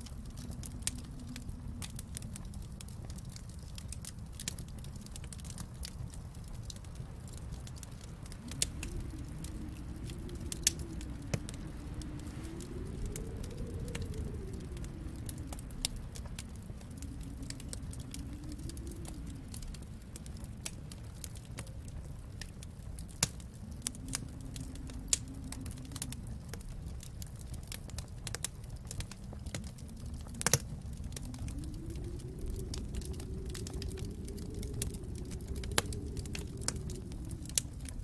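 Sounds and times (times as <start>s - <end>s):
low rumble: 0.0s - 38.0s
wood fire crackling: 0.0s - 38.0s.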